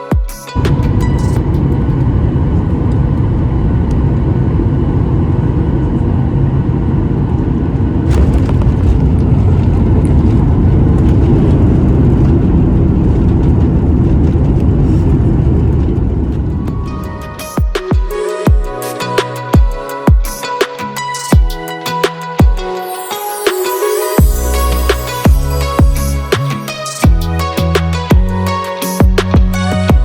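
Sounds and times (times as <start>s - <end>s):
jet engines roaring in cabin: 0.5s - 18.5s
rushing air: 0.6s - 18.2s.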